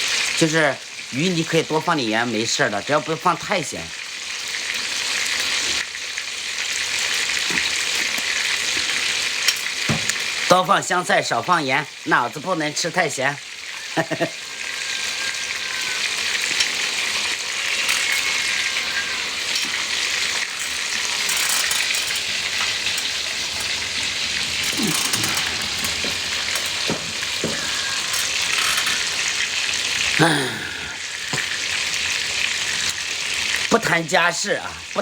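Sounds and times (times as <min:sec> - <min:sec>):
food sizzling in hot oil: 0:00.0 - 0:35.0
stirring in a pan: 0:13.7 - 0:30.2.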